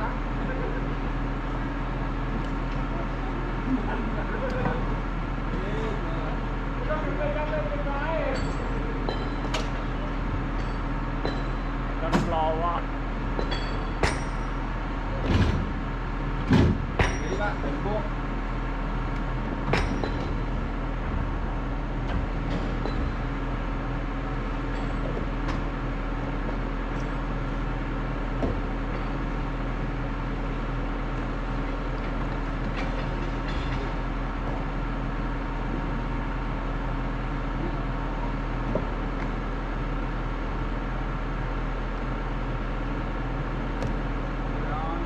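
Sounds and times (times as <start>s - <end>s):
diesel engine running: 0.0s - 45.0s
sharp knocks and clanks: 10.5s - 12.6s, 13.2s - 14.6s, 15.2s - 15.8s, 16.4s - 17.9s, 19.5s - 21.2s, 22.0s - 23.4s, 28.4s - 29.5s, 31.6s - 34.7s.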